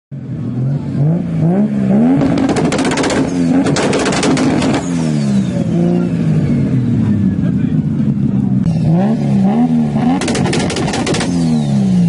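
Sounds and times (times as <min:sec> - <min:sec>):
car engine revving: 0:00.2 - 0:12.0.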